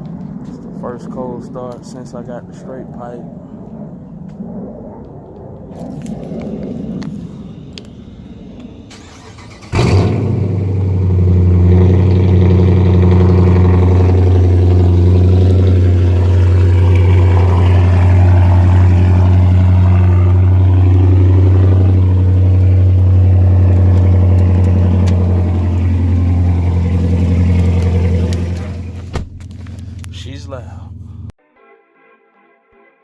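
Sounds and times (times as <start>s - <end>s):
car engine starting and idling: 7.5s - 31.3s.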